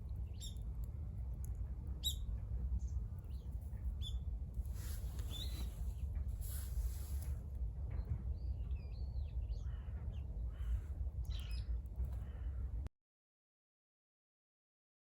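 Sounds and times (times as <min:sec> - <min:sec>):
steady low rumble: 0:00.0 - 0:12.9
birds chirping: 0:02.0 - 0:04.3, 0:05.2 - 0:05.8.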